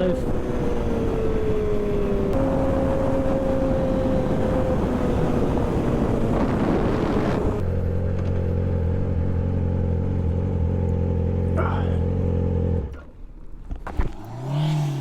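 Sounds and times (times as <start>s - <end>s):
wind rush: 0.0s - 7.7s
low engine hum: 0.0s - 15.0s
motorcycle engine: 0.0s - 15.0s.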